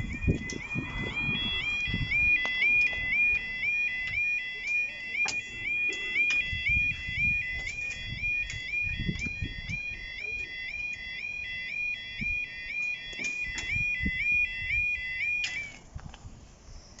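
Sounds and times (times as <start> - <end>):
level crossing alarm warble: 0.0 - 15.8.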